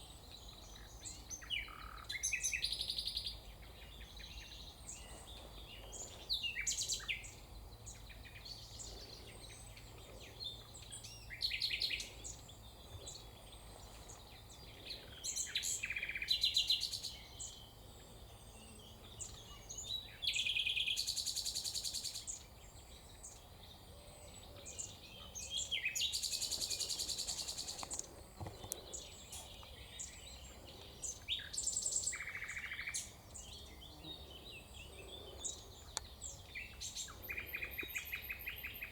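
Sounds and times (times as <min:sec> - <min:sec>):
faint bird chirping: 0:00.0 - 0:38.9
songbird trilling: 0:25.2 - 0:38.9.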